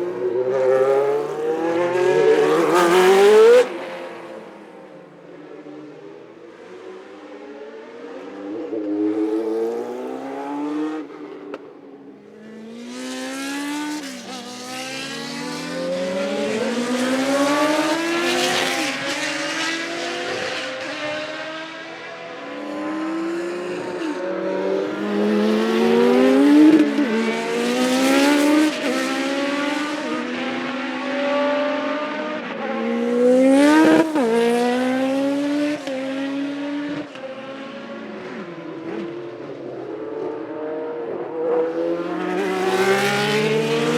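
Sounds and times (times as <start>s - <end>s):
racing car engine accelerating: 40.2s - 43.9s.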